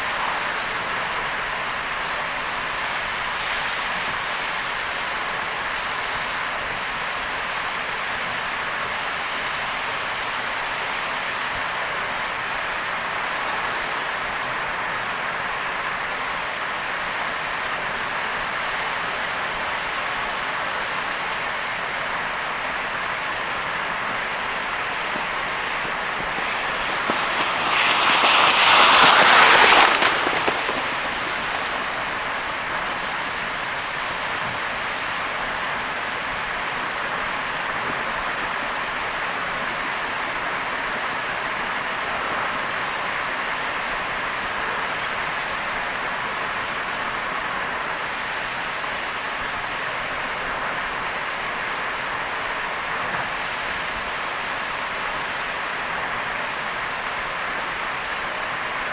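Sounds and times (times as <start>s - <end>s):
passing vehicle rush: 0.0s - 4.4s, 10.9s - 16.9s, 21.4s - 35.1s
rain and tyres on wet road: 0.0s - 58.9s.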